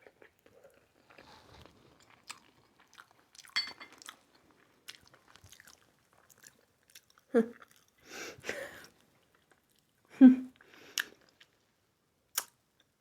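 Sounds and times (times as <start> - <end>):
person chewing wetly: 0.0 - 8.0
wet mouth clicks: 12.3 - 12.6.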